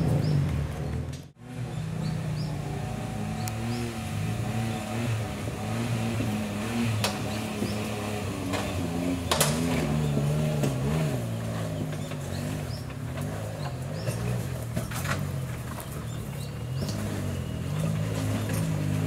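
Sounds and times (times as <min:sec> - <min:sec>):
engine running at low revs: 0:00.0 - 0:19.0.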